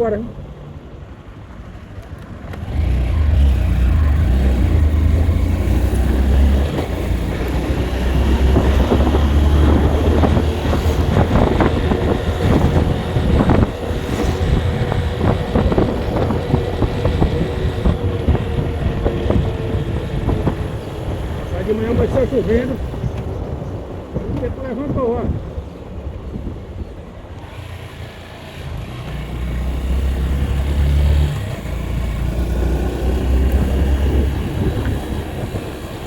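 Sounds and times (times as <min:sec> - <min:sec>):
vehicle low rumble: 0:00.0 - 0:36.0.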